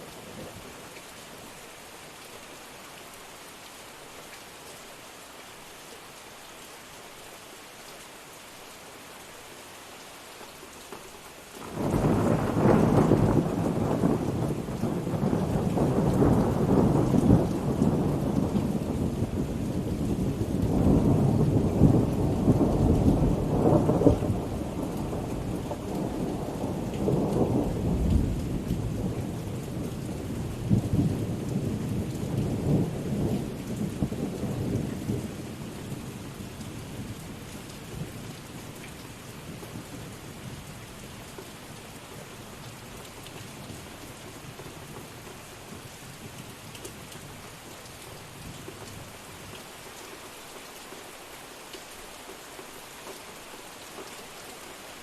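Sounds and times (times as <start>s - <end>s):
rain falling on surfaces: 0.0s - 55.0s
thunder rumbling: 11.6s - 36.2s.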